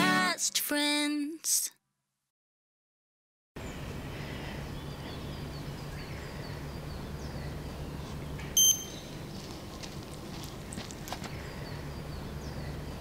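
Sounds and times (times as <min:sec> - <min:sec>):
small birds chirping: 0:03.6 - 0:13.0
loud high beep: 0:08.6 - 0:09.2.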